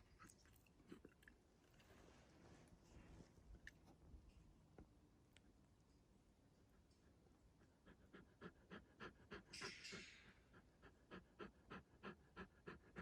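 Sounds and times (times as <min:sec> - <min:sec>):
fast rhythmic panting: 0:07.6 - 0:13.0.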